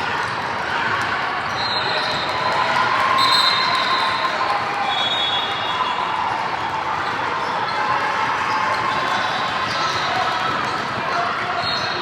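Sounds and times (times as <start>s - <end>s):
voices of players and spectators: 0.0s - 12.0s.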